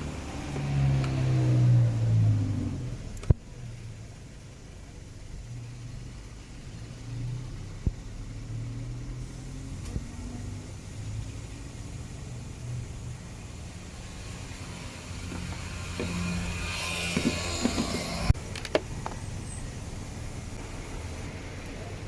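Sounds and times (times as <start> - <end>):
car engine running: 9.7 - 22.0.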